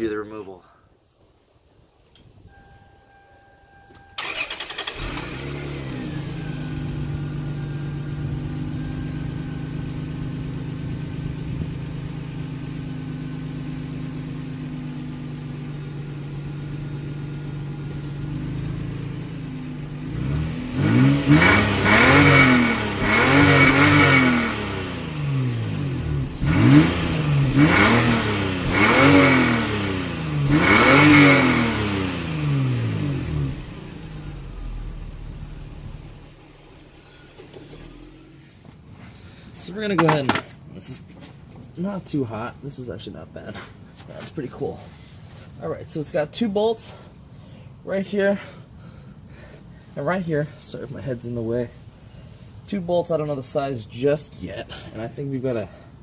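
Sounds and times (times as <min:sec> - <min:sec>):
car engine idling: 0:02.3 - 0:56.0
car engine revving in blips: 0:03.9 - 0:14.3, 0:15.8 - 0:39.0.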